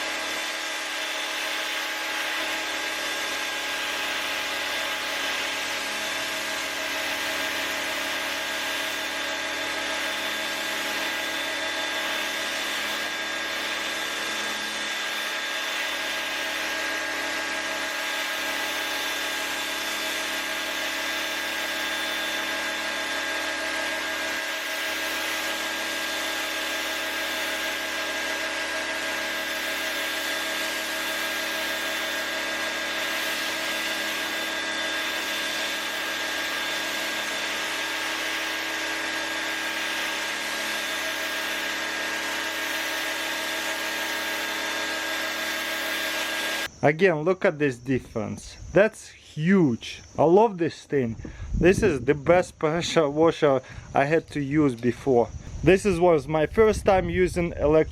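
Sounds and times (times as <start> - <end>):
pressure washer motor hum: 0.0 - 46.8
high-pressure water spray hiss: 24.2 - 46.6.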